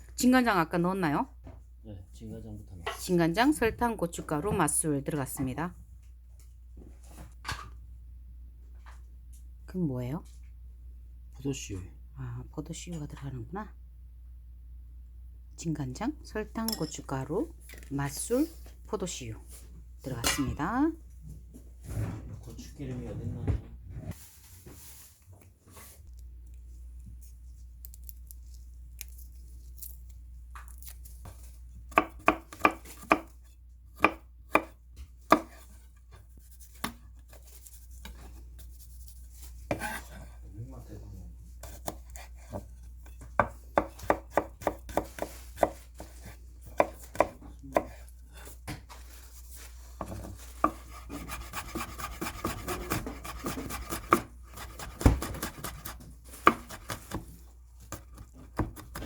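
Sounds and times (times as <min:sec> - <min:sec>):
knife chopping on cutting board: 0:31.2 - 0:38.3, 0:39.6 - 0:40.4, 0:41.6 - 0:49.0, 0:49.9 - 0:59.0.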